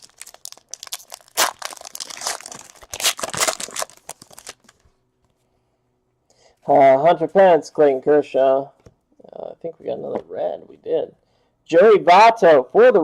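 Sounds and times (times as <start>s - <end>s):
pack being torn open: 0.0s - 4.8s
card pack wrapper crinkling: 0.0s - 4.9s.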